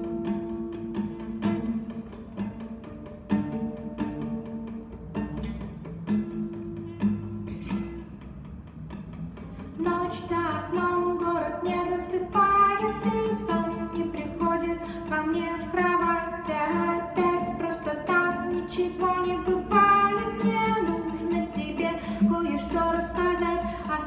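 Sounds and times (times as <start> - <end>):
plucked strings: 0.0 - 24.0
person singing: 9.8 - 24.0.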